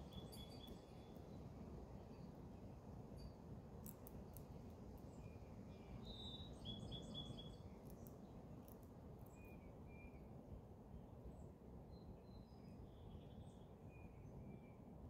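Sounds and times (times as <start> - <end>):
faint bird chirps: 0.0 - 1.4, 5.1 - 8.1, 9.2 - 10.3.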